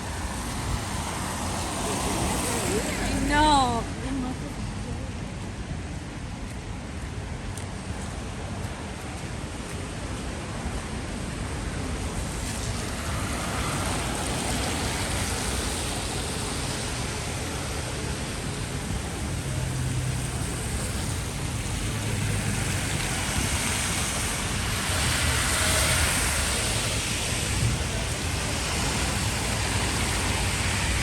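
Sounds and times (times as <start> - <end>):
rain hissing: 0.0 - 3.4, 12.0 - 31.0
traffic on wet street: 0.0 - 31.0.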